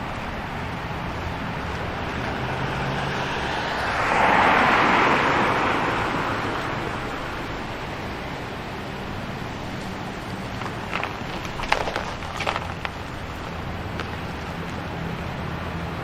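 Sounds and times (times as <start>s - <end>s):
car passing by: 0.0s - 16.0s
city traffic: 0.0s - 16.0s.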